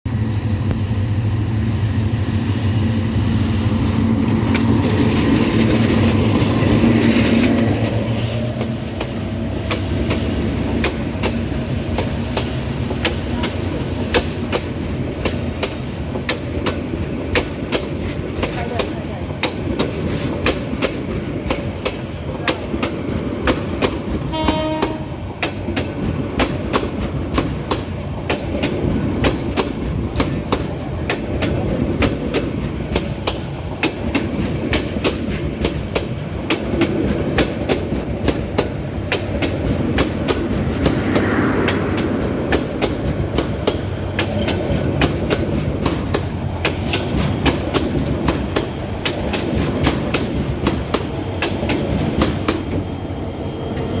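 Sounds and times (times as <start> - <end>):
rumble of moving train: 0.0 - 54.0
train horn blast: 24.3 - 25.3.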